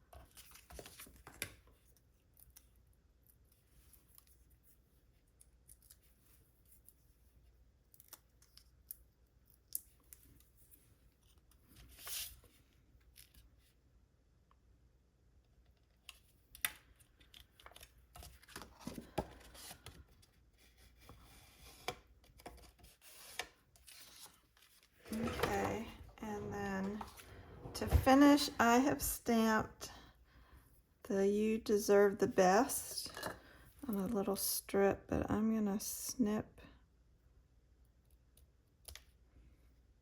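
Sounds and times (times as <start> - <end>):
cardstock rustling: 22.4 - 29.0.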